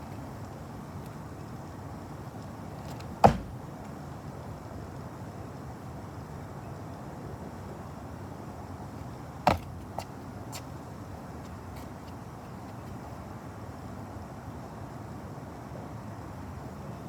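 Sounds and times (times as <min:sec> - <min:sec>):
low background noise: 0:00.0 - 0:17.0
sharp knock: 0:03.2 - 0:03.6.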